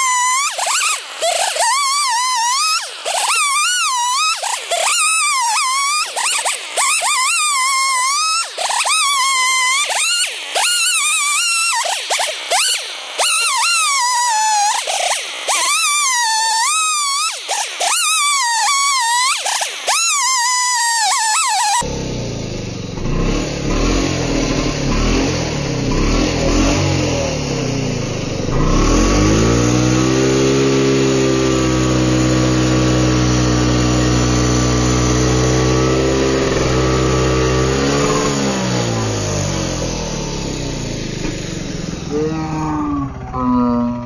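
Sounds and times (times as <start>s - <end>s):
chainsaw cutting log: 0.0s - 43.5s
brief warbling tone: 42.1s - 44.0s.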